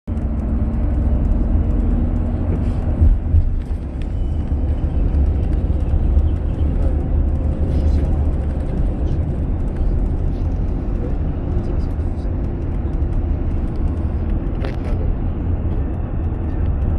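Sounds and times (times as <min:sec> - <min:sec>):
car engine and road noise: 0:00.0 - 0:16.9.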